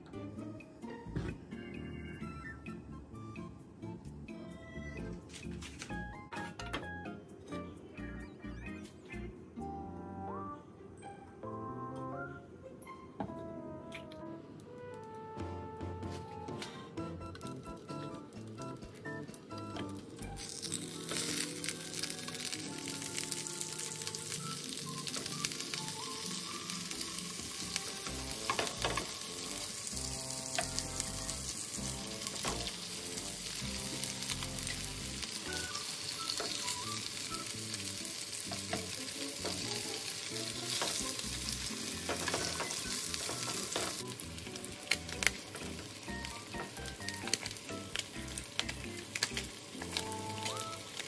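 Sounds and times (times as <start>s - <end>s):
meat sizzling in oil: 20.2s - 51.0s.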